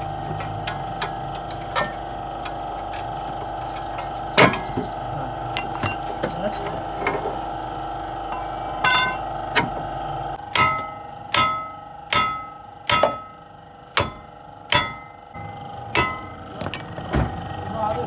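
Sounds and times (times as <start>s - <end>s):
hammer striking steel: 1.8s - 2.0s, 5.6s - 6.1s, 8.4s - 9.2s, 10.4s - 17.0s
steady hum: 8.1s - 17.2s.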